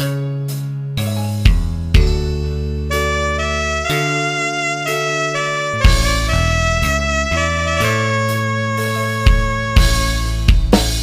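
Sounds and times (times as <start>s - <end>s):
electronic keyboard melody: 0.0s - 11.0s
sustained bass: 1.4s - 11.0s
drum hit: 5.3s - 7.8s, 9.2s - 11.0s.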